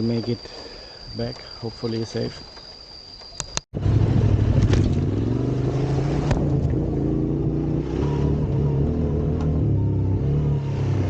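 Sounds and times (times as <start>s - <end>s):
motorcycle engine running: 3.8s - 11.0s.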